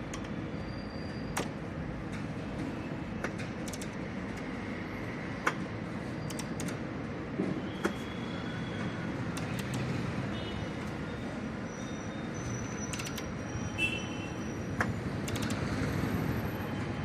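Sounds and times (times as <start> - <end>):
hand tools clicking on metal: 3.2 - 4.5, 15.2 - 15.7.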